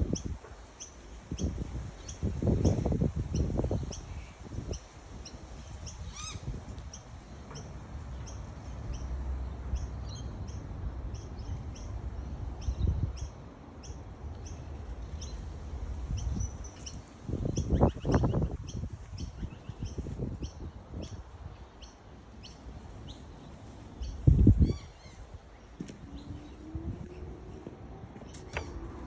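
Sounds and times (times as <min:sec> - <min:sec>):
small birds chirping: 0:00.0 - 0:29.0
rising bird call: 0:06.0 - 0:06.5.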